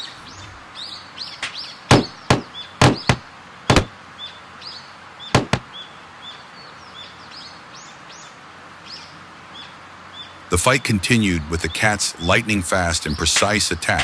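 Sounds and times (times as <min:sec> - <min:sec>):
outdoor hiss: 0:00.0 - 0:14.0
small birds chirping: 0:00.0 - 0:14.0
sharp knocks or clicks: 0:01.9 - 0:03.9, 0:05.4 - 0:05.7.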